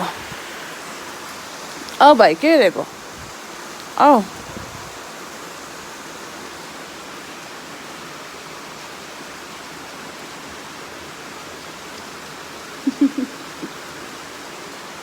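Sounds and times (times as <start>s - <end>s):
heavy rain pouring: 0.0s - 15.0s
short voice sounds: 12.9s - 13.4s.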